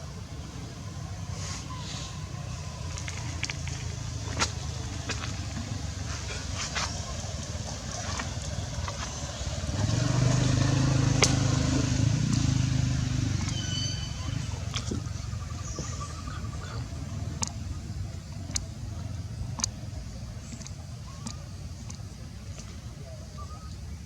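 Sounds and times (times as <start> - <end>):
low engine hum: 0.0 - 24.0
outdoor background noise: 0.0 - 24.0
high-pitched squeak: 13.4 - 14.4.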